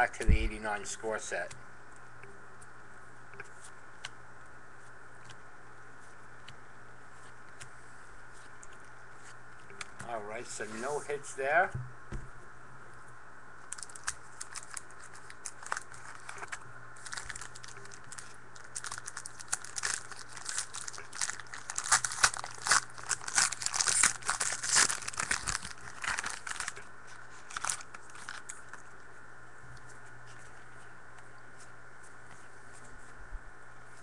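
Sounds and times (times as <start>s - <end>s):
wrapper crinkling and tearing: 13.7s - 28.8s.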